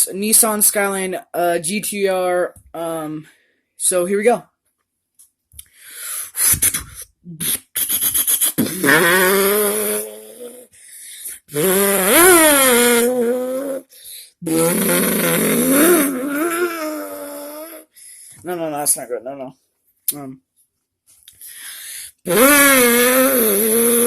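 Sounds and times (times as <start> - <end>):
person imitating engine revs: 6.5 - 17.9, 22.2 - 24.0.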